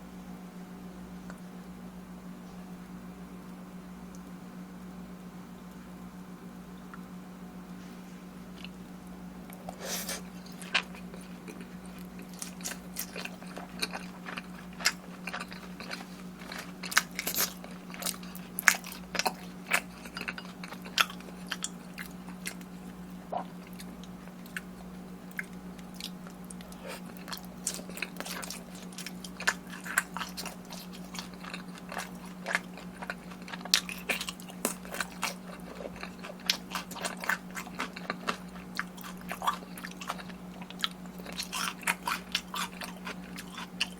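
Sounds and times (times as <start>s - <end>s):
faint low hum: 0.0s - 43.9s
crunching fried chicken: 8.4s - 43.9s
crisp bites and chewing: 9.5s - 43.9s.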